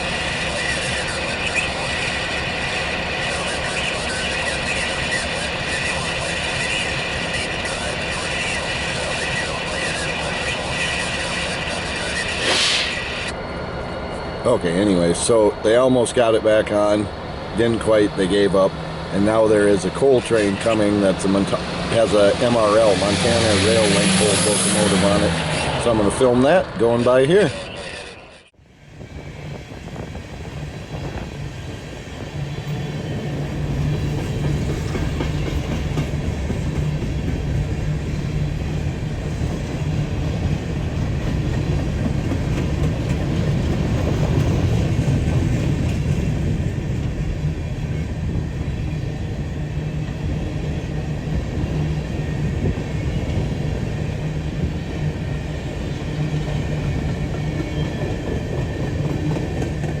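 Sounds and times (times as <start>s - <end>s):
diesel locomotive engine: 0.0s - 60.0s
train wagons rolling over rails: 30.2s - 60.0s.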